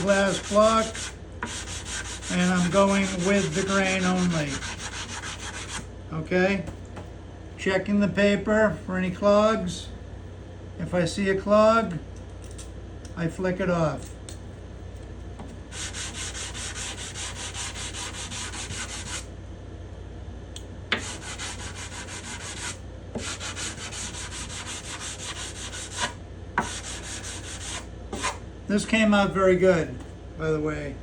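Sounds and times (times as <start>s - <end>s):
sandpaper rubbing on wood: 0.0s - 5.8s, 15.7s - 19.2s, 21.0s - 28.4s.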